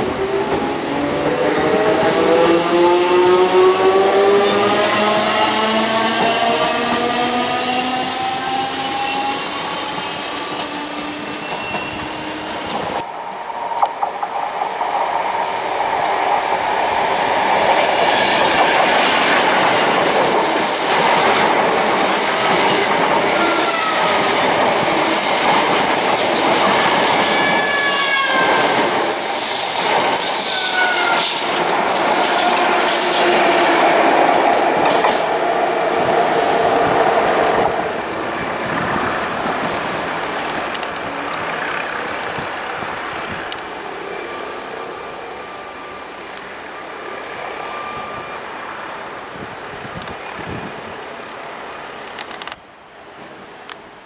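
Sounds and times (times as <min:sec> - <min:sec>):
express train rushing past: 0:00.0 - 0:54.0
wheel squeals: 0:08.8 - 0:12.6.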